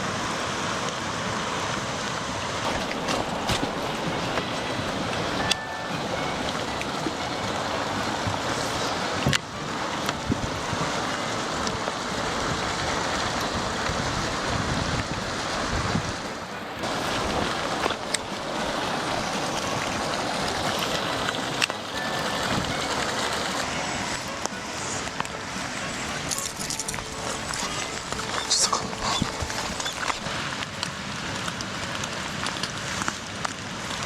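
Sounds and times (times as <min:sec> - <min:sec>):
waves rushing: 0:00.0 - 0:34.0
wind: 0:00.0 - 0:34.0.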